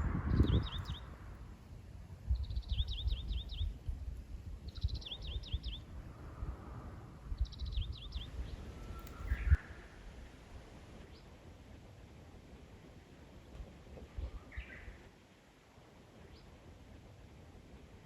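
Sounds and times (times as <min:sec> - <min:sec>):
songbird singing: 0:00.0 - 0:10.2, 0:14.2 - 0:15.1.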